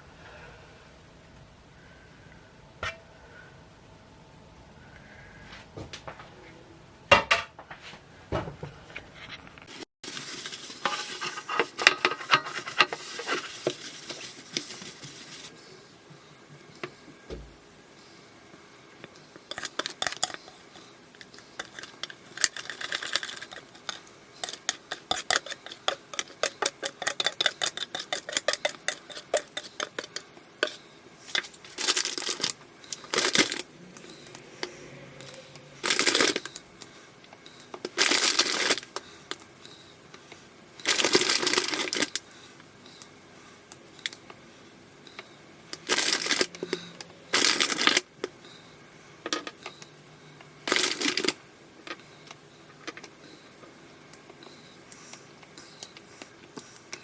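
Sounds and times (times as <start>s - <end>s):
scraping sounds: 9.2s - 15.7s, 19.5s - 36.6s
utensil clinking against bowl: 21.6s - 30.8s.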